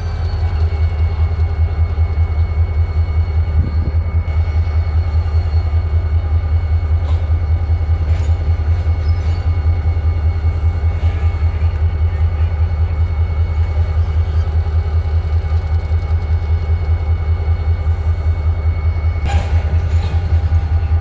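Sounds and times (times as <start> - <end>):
diesel locomotive rumble: 0.0 - 21.0
faint steady squeal: 0.0 - 21.0.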